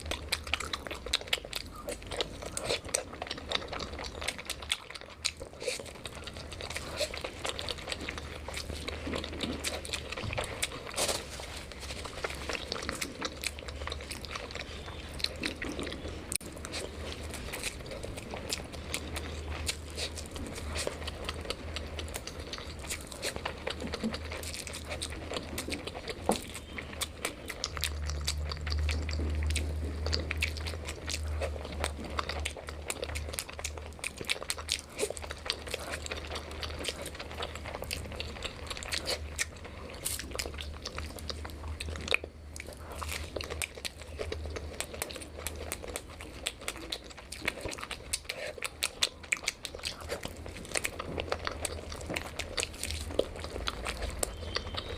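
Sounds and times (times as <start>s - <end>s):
person chewing crunchy food: 0.0s - 54.9s
steady low hum: 0.0s - 54.9s.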